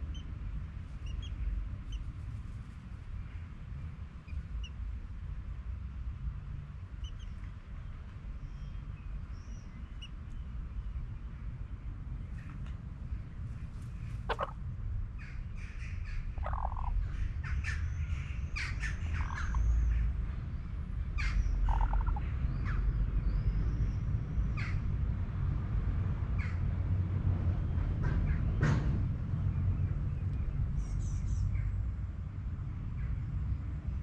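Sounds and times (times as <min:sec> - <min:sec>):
low steady rumble: 0:00.0 - 0:34.0
birds calling: 0:01.0 - 0:02.1, 0:14.0 - 0:14.6, 0:15.2 - 0:20.1, 0:21.2 - 0:22.8.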